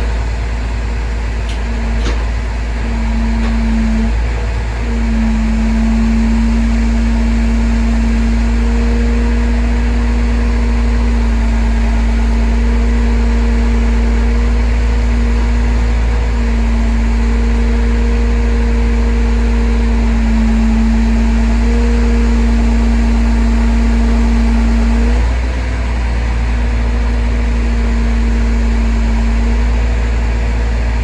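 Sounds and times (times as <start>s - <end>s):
high whine: 0.0s - 15.8s
heavy vehicle engine running: 0.0s - 31.0s.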